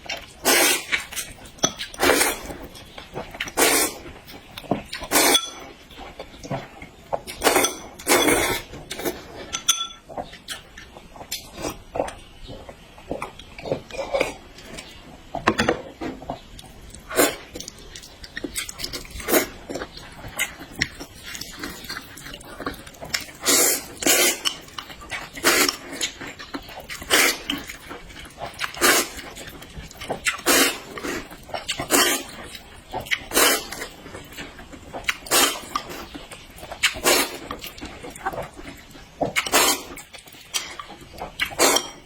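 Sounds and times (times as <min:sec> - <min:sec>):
chewing: 0:00.0 - 0:15.4, 0:16.1 - 0:42.0
slurping: 0:00.4 - 0:02.5, 0:18.5 - 0:34.0, 0:35.0 - 0:42.0.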